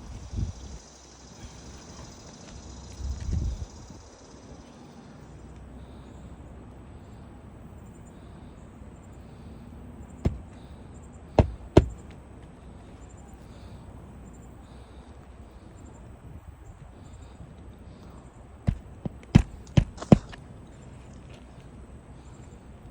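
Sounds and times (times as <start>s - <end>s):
roofing nails being hammered: 10.3s - 10.7s, 11.4s - 12.1s, 18.7s - 20.4s.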